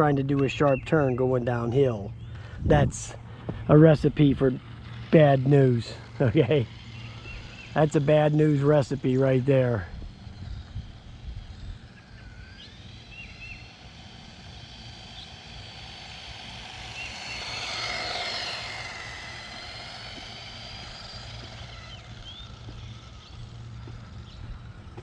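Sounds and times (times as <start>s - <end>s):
toy car electric motor whining: 2.6s - 25.0s.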